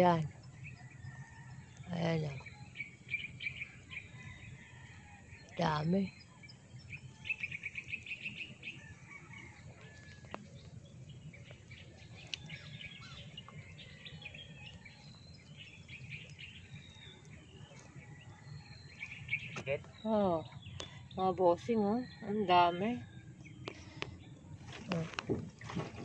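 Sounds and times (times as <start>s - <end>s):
small birds trilling and chirping: 0.0s - 25.7s.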